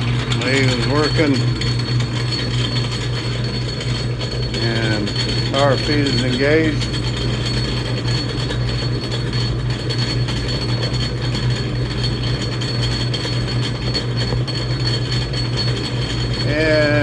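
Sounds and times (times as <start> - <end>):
metal lathe humming: 0.0 - 17.0
high thin whine: 16.4 - 17.0.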